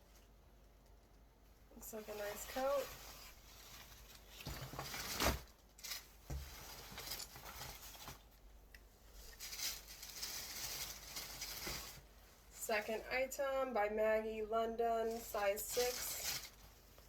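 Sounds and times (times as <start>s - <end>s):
clothing rustling: 1.8s - 12.6s, 15.1s - 17.0s.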